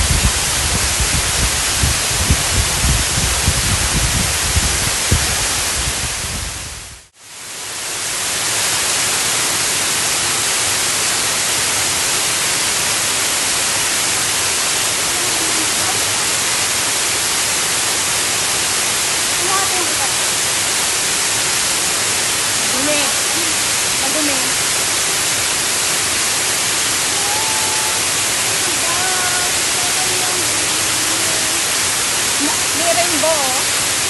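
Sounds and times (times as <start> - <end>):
low bumps: 0.0 - 6.9
water rushing: 0.0 - 34.0.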